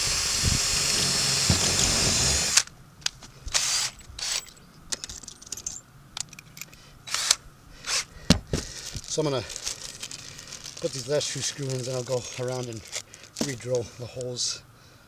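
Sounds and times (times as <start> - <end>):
cordless drill driving screw: 0.0 - 2.7, 3.5 - 4.6, 7.1 - 8.1
handling clicks and knocks: 4.0 - 7.4, 8.3 - 14.4.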